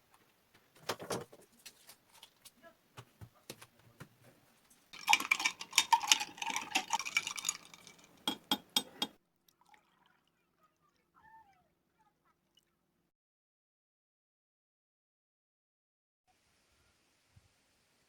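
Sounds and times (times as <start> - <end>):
water pouring: 5.0 - 8.6, 9.5 - 11.6
glass clinking: 5.0 - 9.2.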